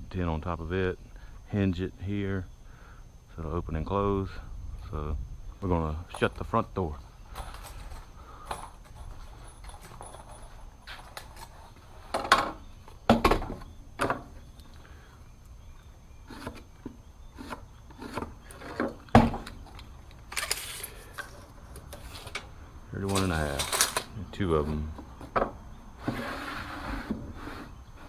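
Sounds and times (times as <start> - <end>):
wooden boards and tin clattering: 12.1 - 14.4, 23.1 - 24.1.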